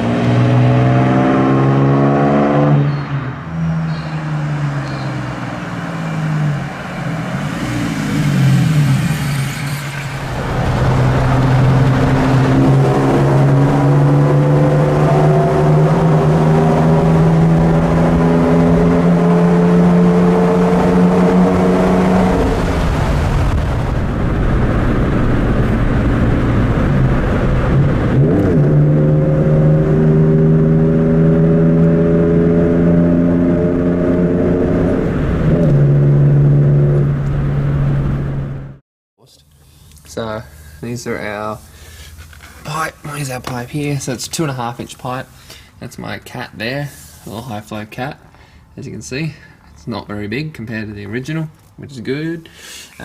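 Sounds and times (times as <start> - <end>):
car engine accelerating: 0.0 - 38.8.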